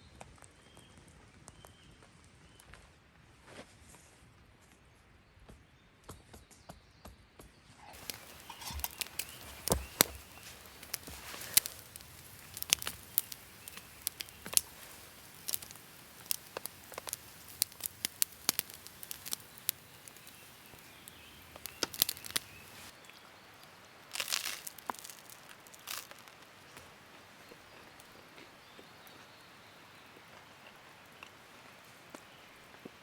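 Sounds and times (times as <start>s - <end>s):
dry wood crackling: 8.0s - 33.0s.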